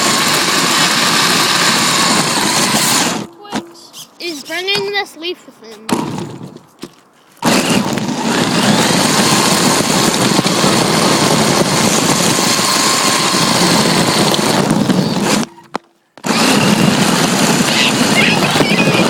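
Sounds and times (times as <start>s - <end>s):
rc car tyres rushing: 0.0s - 3.4s, 7.4s - 19.0s.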